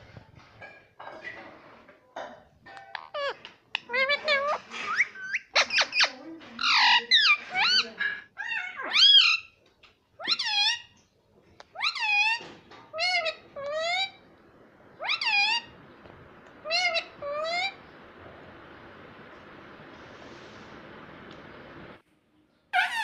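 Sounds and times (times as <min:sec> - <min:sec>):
parrot calling: 0:02.9 - 0:09.6, 0:10.2 - 0:11.0, 0:11.7 - 0:14.2, 0:15.0 - 0:15.8, 0:16.6 - 0:18.1, 0:22.8 - 0:23.0.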